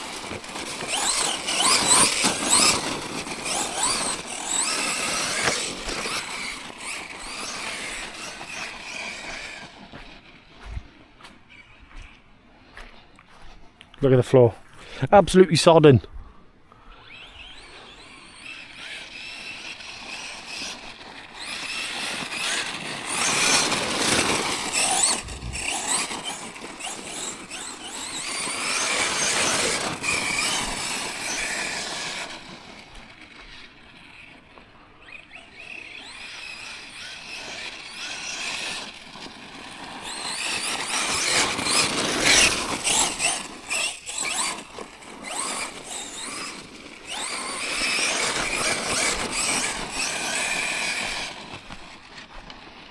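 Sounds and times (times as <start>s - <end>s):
electric motor whine: 0.0s - 12.2s, 16.8s - 52.9s
tyre noise: 21.4s - 31.8s.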